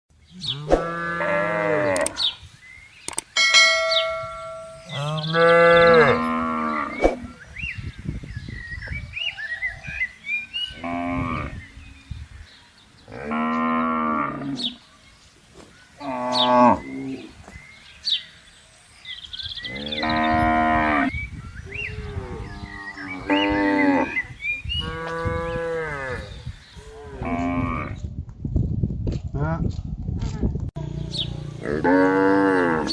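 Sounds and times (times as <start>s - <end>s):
cattle mooing: 0.5s - 2.2s, 4.8s - 7.0s, 31.6s - 32.9s.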